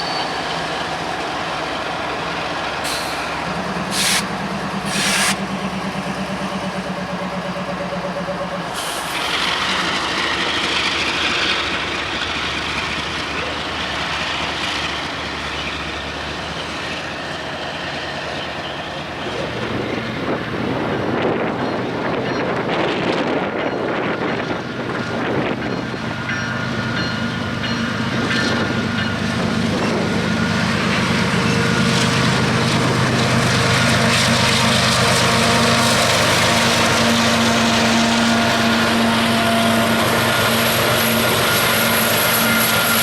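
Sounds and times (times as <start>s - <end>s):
freight train rumble: 0.0s - 43.0s
air hisses: 2.9s - 5.4s.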